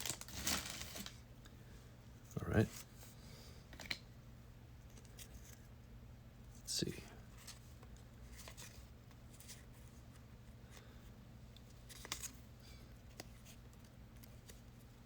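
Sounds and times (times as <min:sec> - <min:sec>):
trading cards rustling and clicking: 0:00.0 - 0:01.2, 0:11.6 - 0:12.4
low steady hum: 0:00.0 - 0:15.0.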